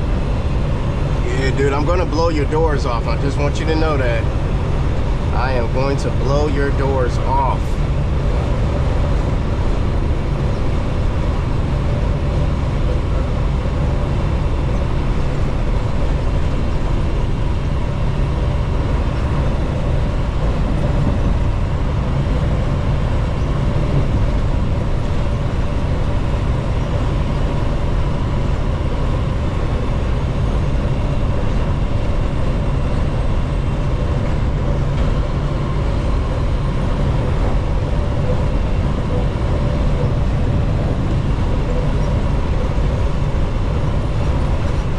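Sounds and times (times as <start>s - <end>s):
faint constant hum: 0.0s - 44.9s
truck engine and road rumble: 0.0s - 44.9s.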